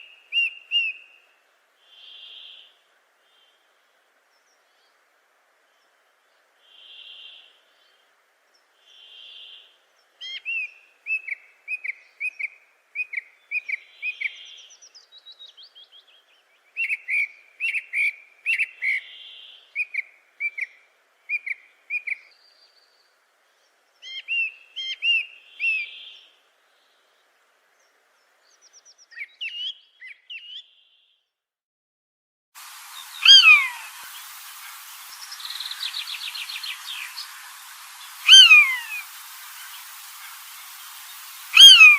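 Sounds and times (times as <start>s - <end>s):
steady hiss: 0.0s - 17.6s, 32.6s - 41.9s
small birds chirping: 1.8s - 31.2s, 32.6s - 41.9s
whistled bird calls and trill: 10.2s - 22.9s, 28.5s - 31.1s, 32.9s - 41.9s.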